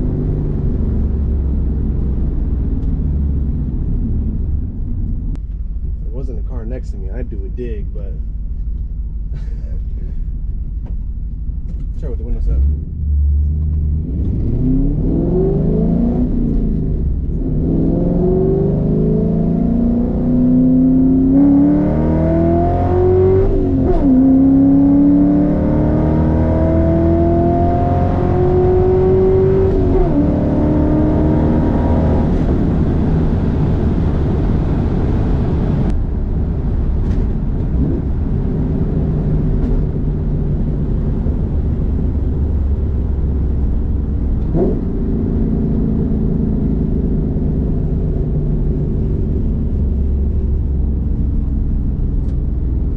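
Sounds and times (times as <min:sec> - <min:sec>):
car engine accelerating through gears: 0:11.6 - 0:52.9.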